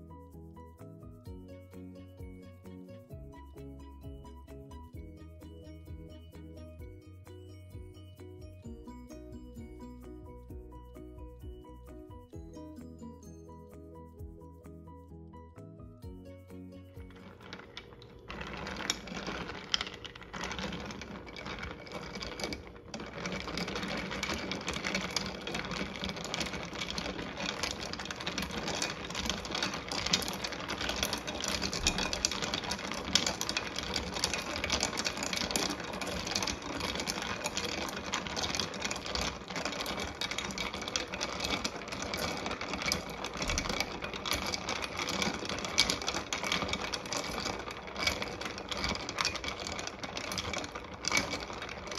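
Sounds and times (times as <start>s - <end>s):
spoon stirring ice in glass: 17.0s - 51.9s.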